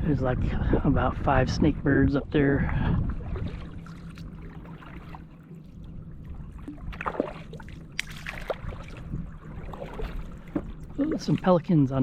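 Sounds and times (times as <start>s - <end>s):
kayak paddle dipping in water: 2.7s - 11.9s
small splashes: 3.2s - 5.6s, 6.6s - 11.7s
water trickling off paddle: 3.3s - 11.8s.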